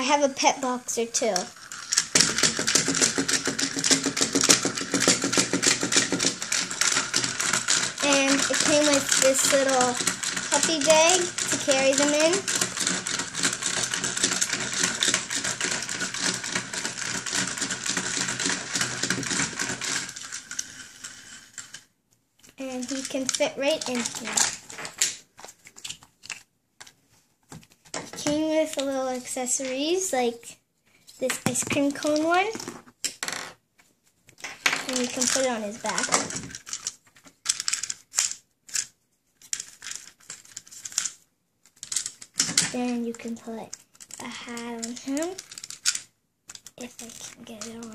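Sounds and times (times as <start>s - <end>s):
toy motor clicking rattle: 0.5s - 21.9s, 22.6s - 24.7s, 34.6s - 41.2s, 41.8s - 47.9s.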